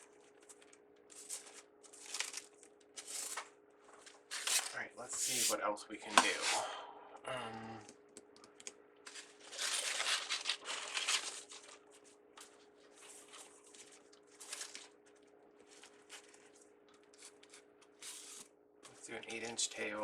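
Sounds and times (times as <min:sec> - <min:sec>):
faint steady hum: 0:00.0 - 0:20.0
ribbon rustling and crinkling: 0:00.1 - 0:05.5, 0:09.1 - 0:18.5.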